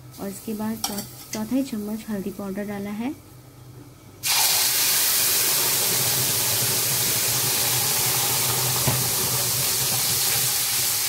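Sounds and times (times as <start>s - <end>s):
paste sizzling in hot oil: 4.2s - 11.0s.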